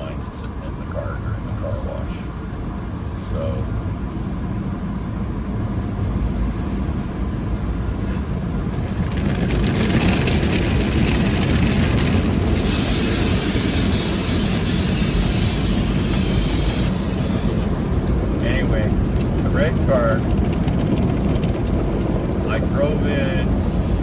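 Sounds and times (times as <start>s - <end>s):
car wash machinery rumble: 0.0s - 24.0s
water spray hissing: 12.5s - 18.3s.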